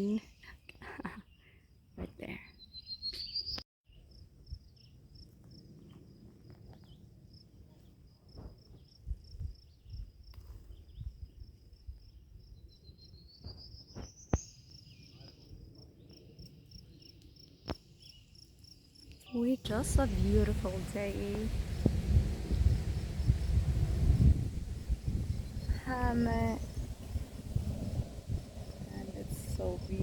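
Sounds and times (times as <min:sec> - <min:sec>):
low outdoor rumble: 0:19.4 - 0:30.0.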